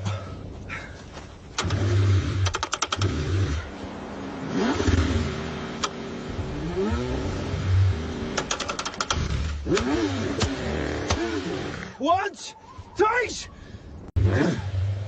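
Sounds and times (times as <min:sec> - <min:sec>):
starter clicks: 0:01.5 - 0:03.2, 0:08.3 - 0:11.2
car engine cranking: 0:01.5 - 0:03.7, 0:04.5 - 0:07.4, 0:08.0 - 0:11.9
engine sputtering and revving: 0:01.6 - 0:12.0, 0:14.2 - 0:15.0.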